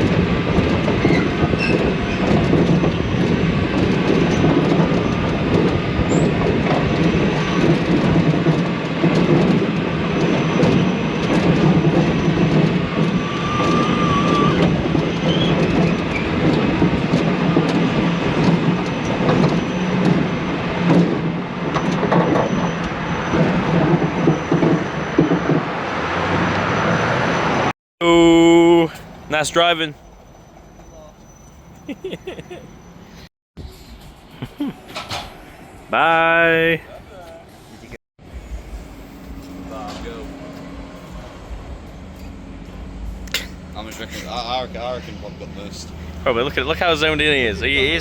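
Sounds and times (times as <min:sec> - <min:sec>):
coaster wheels rattling on rail: 0:00.0 - 0:27.7, 0:29.0 - 0:48.0
faint wheel squeals: 0:12.1 - 0:16.4, 0:29.8 - 0:33.3
constant low hum: 0:38.2 - 0:48.0.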